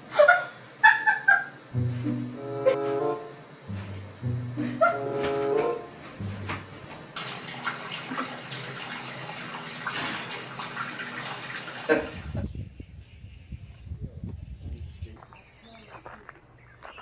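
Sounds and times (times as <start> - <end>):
running water: 6.2 - 12.3.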